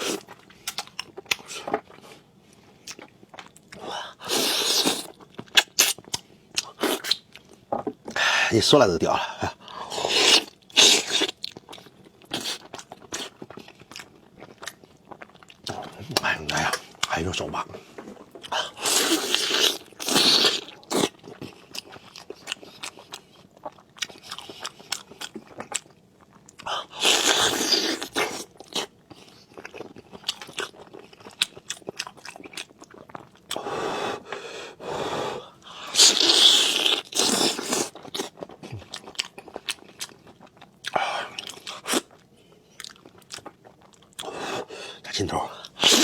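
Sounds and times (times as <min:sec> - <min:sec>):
chewing and biting food: 0:00.0 - 0:02.1, 0:10.0 - 0:17.4, 0:18.2 - 0:33.6, 0:35.7 - 0:44.4.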